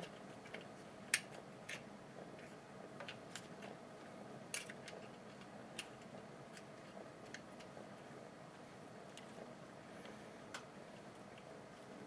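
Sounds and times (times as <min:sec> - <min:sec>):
small parts clicking and tapping: 0:00.0 - 0:03.8, 0:04.5 - 0:07.8.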